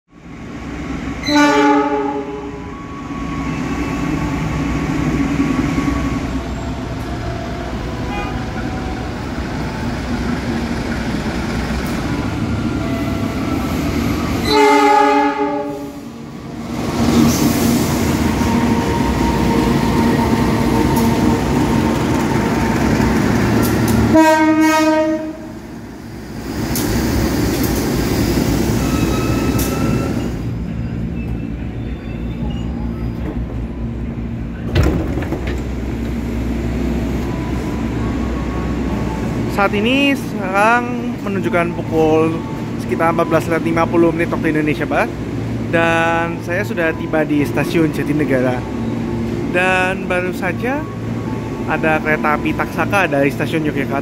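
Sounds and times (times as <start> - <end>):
trains rumbling on track: 0.1 - 54.0
multi-tone air horn blasts: 1.2 - 2.6, 14.4 - 16.0, 24.1 - 25.5.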